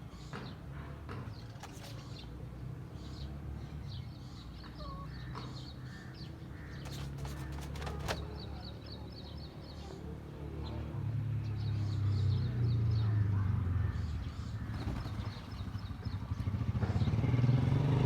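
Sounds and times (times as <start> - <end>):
birds chirping: 0.1 - 9.9, 13.8 - 17.6.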